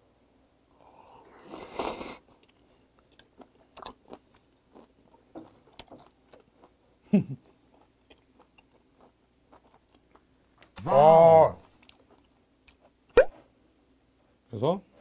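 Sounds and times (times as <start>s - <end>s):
wet chewing with clicks: 7.5s - 10.8s, 11.6s - 13.3s.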